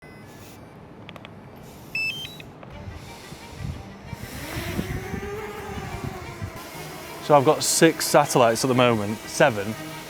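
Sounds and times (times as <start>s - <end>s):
electronic beeps: 0.0s - 0.8s, 1.9s - 2.5s
quadcopter motors whining: 2.9s - 10.0s.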